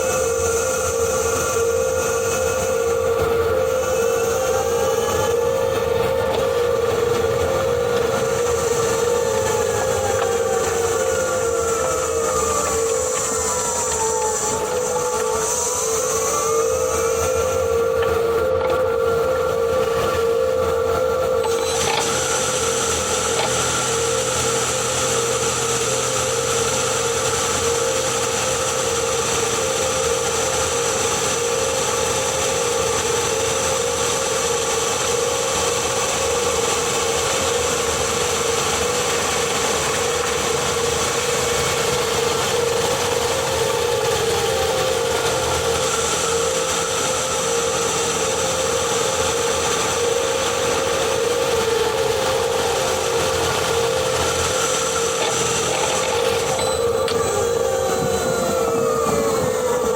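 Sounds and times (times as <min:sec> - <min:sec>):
gearbox whine: 0:00.0 - 0:59.9.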